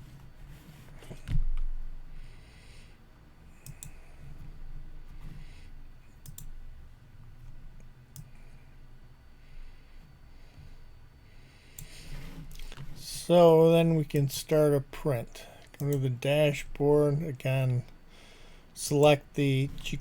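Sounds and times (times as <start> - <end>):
computer mouse clicks: 3.6 - 4.0, 6.2 - 6.6, 7.8 - 8.4.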